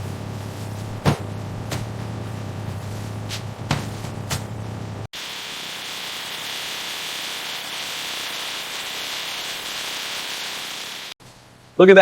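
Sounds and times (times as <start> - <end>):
steady hiss: 5.2 - 12.0.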